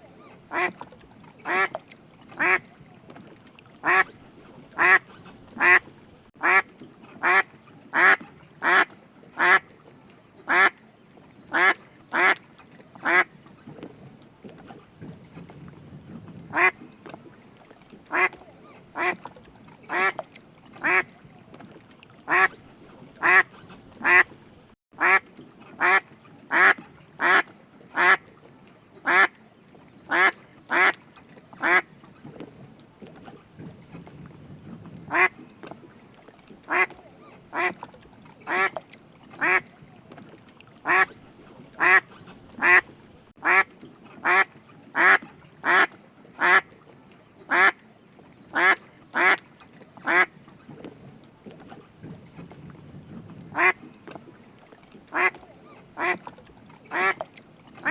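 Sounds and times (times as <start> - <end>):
duck quacking: 0.5 - 0.7, 1.5 - 1.7, 2.4 - 2.6, 3.8 - 4.1, 4.8 - 5.8, 6.4 - 6.6, 7.2 - 7.4, 8.0 - 9.6, 10.5 - 10.8, 11.5 - 12.4, 16.5 - 16.8, 18.1 - 18.4, 19.0 - 19.2, 22.3 - 22.5, 23.2 - 24.3, 25.0 - 25.2, 25.8 - 28.2, 29.1 - 29.3, 30.1 - 31.0, 35.1 - 35.3, 36.7 - 36.9, 37.5 - 37.8, 40.8 - 41.1, 41.8 - 42.8, 43.4 - 46.6, 48.6 - 49.4.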